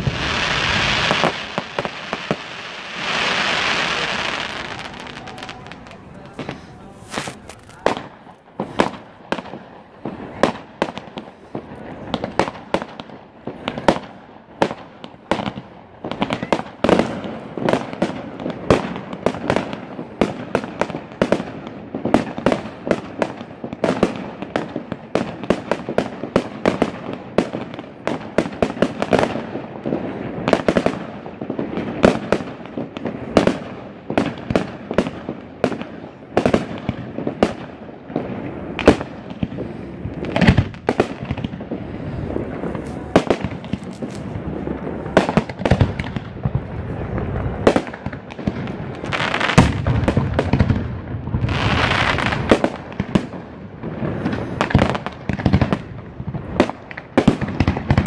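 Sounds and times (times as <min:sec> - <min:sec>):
fireworks shells bursting: 0:00.0 - 0:09.1.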